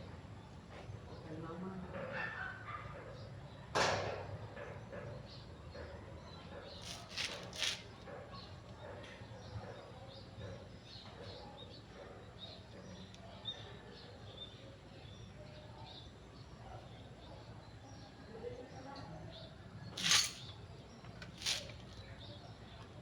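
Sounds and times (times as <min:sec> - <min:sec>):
small birds chirping: 0:04.6 - 0:23.0.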